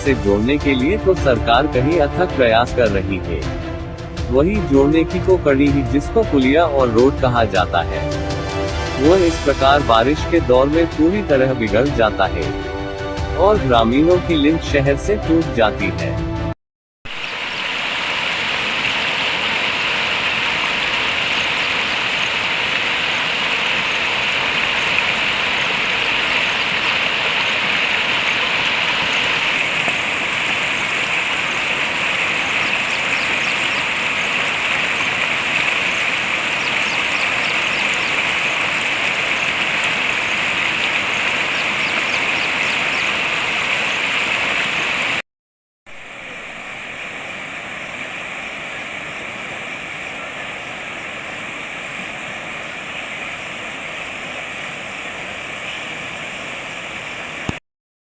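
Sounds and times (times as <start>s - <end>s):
floodwater rushing over culvert: 17.1s - 45.2s, 45.9s - 57.6s.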